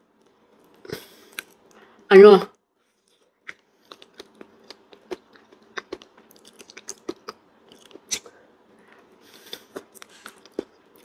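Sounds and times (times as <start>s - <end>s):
person chewing with wet mouth clicks: 3.4s - 8.3s.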